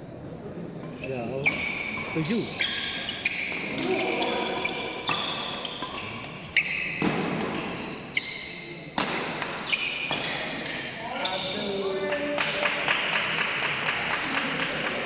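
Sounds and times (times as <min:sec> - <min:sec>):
rackets hitting shuttlecock: 0:00.9 - 0:07.8, 0:09.0 - 0:10.8.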